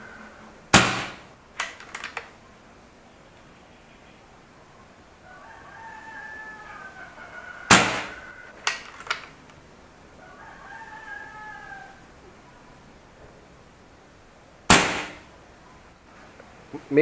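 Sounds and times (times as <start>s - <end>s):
rooster crowing: 0.0s - 0.7s, 5.2s - 9.2s, 10.1s - 12.3s
air rifle shot: 0.7s - 1.3s, 7.7s - 8.2s, 14.7s - 15.3s.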